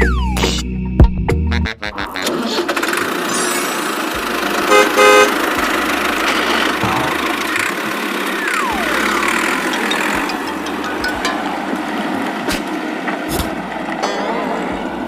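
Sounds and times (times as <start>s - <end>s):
vehicle engine running: 2.6s - 15.0s
horn honks: 4.6s - 6.0s.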